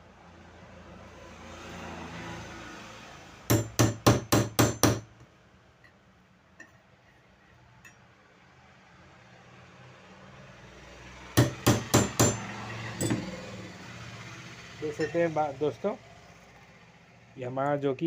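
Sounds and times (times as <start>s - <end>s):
hammer striking metal punch: 3.5s - 5.1s, 11.4s - 13.4s.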